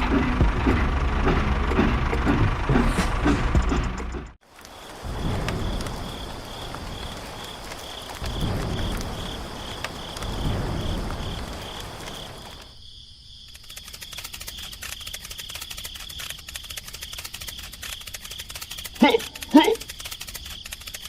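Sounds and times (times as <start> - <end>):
cricket chirping: 4.4 - 21.0
fast fine ticking: 13.6 - 21.0.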